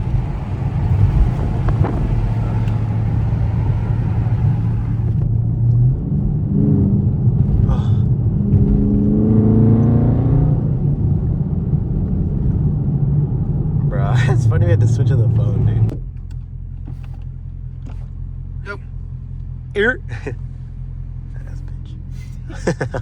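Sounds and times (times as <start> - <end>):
car engine droning and revving: 0.0 - 23.0.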